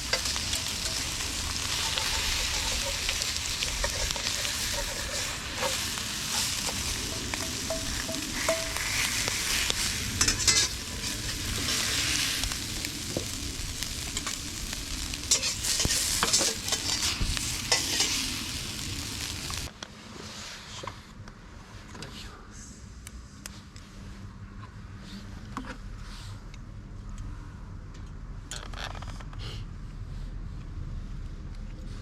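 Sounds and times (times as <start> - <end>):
campfire crackling and popping: 0.0 - 19.7.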